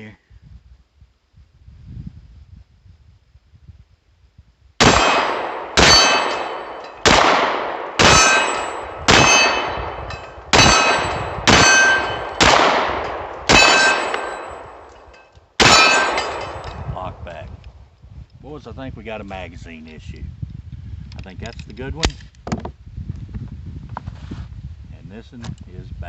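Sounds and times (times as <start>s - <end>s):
pistol shots: 4.8s - 16.8s
steel target ringing: 4.8s - 16.8s.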